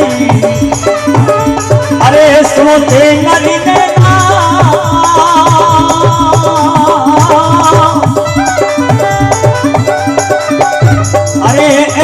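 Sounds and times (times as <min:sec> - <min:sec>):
person singing: 0:00.0 - 0:08.7, 0:11.4 - 0:12.0
hand drum beat: 0:00.0 - 0:12.0
wavering melodic lead line: 0:00.0 - 0:12.0.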